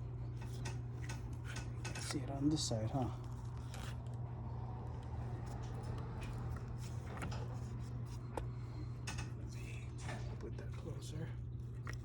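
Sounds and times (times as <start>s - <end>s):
steady low hum: 0.0s - 12.0s
faint clicks and taps of parts: 8.3s - 9.4s.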